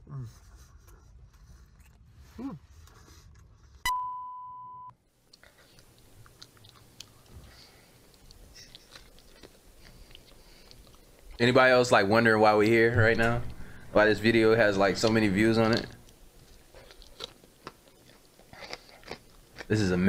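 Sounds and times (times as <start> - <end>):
steady electronic beep: 3.8 - 4.9
person chewing food: 5.2 - 11.4, 15.0 - 20.0.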